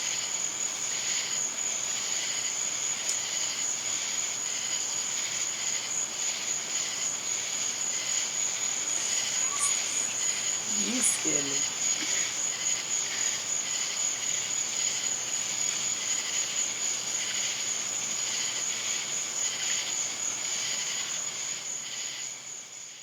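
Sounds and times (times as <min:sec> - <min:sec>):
high-pitched insect trill: 0:06.8 - 0:11.9
pulsing insect chirping: 0:08.4 - 0:11.8.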